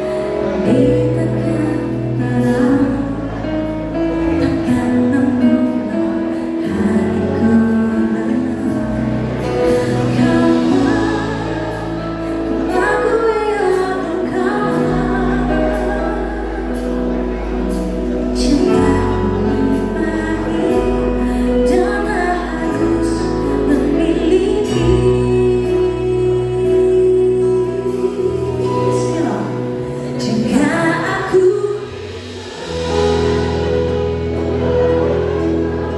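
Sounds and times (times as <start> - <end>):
live band playing pop: 0.0 - 35.9
person singing: 0.0 - 35.9.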